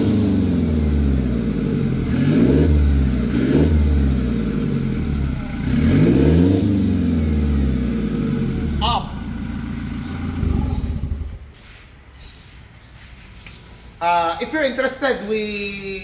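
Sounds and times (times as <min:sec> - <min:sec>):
truck engine revving: 0:00.0 - 0:11.5.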